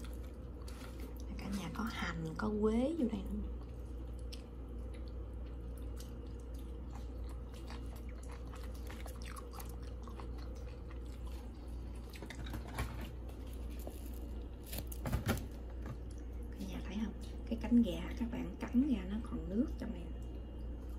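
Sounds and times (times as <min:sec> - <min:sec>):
person chewing crisp food: 0:00.0 - 0:01.3, 0:03.5 - 0:15.0
low room hum: 0:00.0 - 0:20.9.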